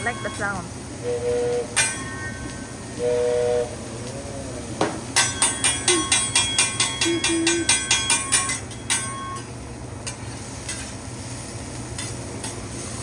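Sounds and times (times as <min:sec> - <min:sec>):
metal spatula clanging on griddle: 0:01.7 - 0:02.5, 0:04.8 - 0:11.0, 0:11.9 - 0:12.8.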